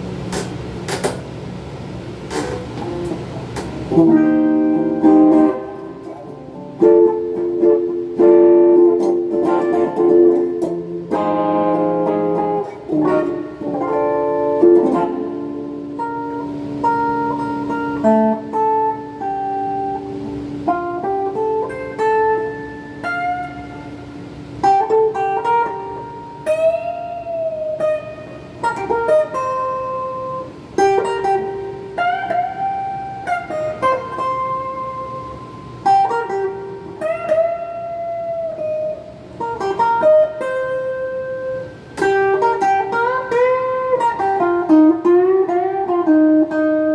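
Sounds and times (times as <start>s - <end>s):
overdriven electric guitar: 0.0s - 46.9s.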